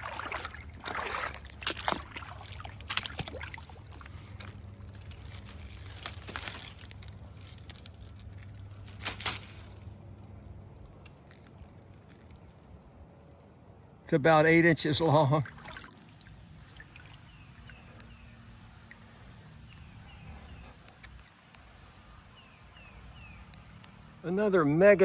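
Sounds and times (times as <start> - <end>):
splashing of water and mud: 0.0 - 10.0, 15.0 - 24.3.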